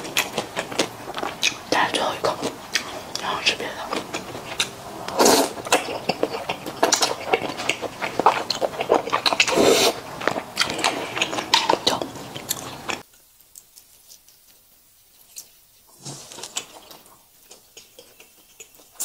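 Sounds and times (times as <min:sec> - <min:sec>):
chewing and slurping noodles: 0:00.0 - 0:13.0.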